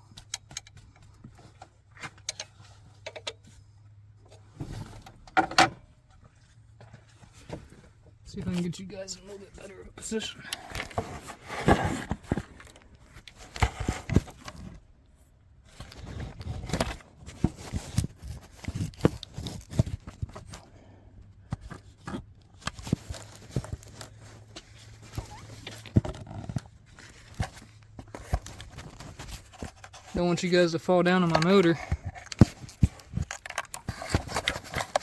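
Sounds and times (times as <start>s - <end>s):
camera handling knocks and rustling: 31.2s - 35.0s.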